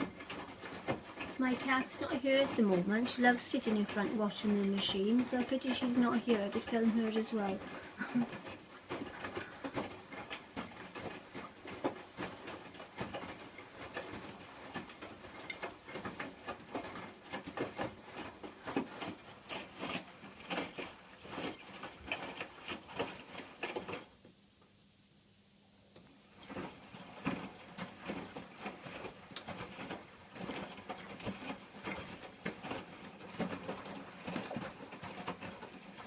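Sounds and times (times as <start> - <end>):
washing machine drum tumbling: 0.0 - 24.1.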